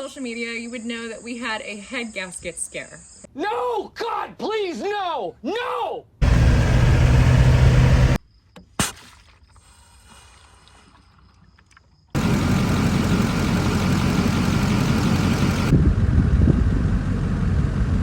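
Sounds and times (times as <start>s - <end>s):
vehicle engine rumbling: 6.2s - 8.2s, 12.2s - 18.0s.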